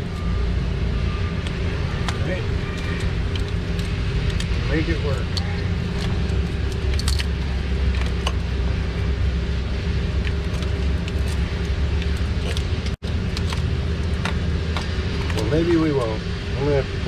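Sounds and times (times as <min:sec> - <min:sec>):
machinery humming: 0:00.0 - 0:17.0
tools clicking and tapping: 0:01.4 - 0:04.6.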